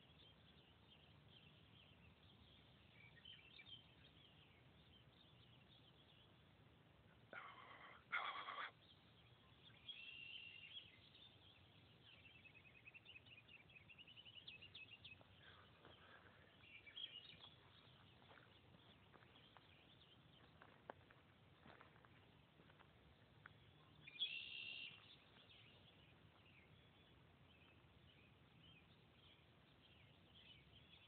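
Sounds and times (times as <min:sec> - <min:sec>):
faint songbird calls: 0:00.0 - 0:31.0.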